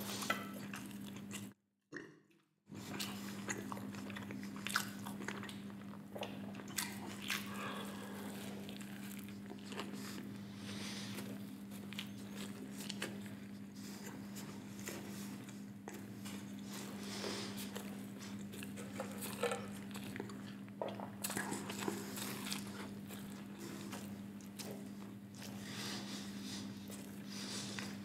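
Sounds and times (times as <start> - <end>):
chewing crunchy food: 0.0 - 28.0
low steady hum: 2.8 - 28.0.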